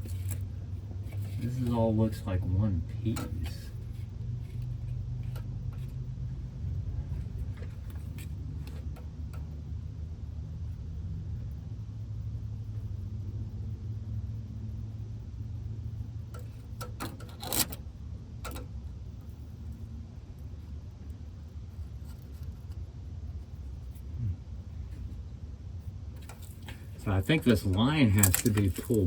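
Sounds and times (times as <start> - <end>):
steady low rumble: 0.0 - 29.0
hand tools clicking on metal: 27.5 - 29.0.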